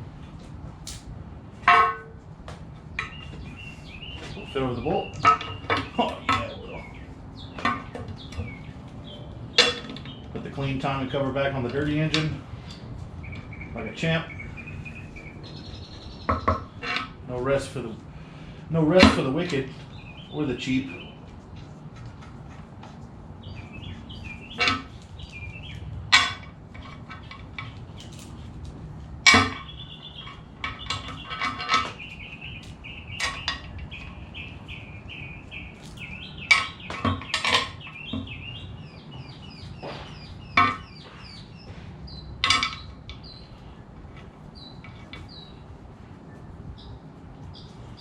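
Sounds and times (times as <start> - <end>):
tools clinking on metal: 26.1 - 28.4, 35.8 - 38.3, 42.4 - 43.4.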